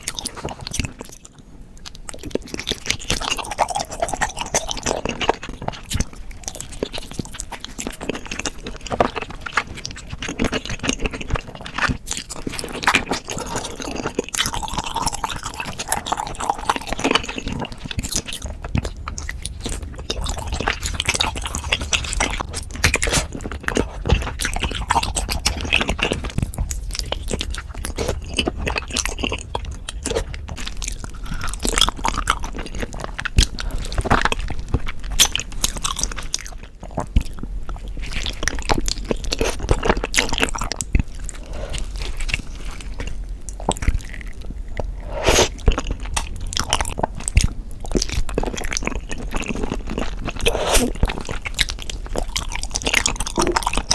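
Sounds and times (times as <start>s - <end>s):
chewing and crunching: 0.0s - 53.9s.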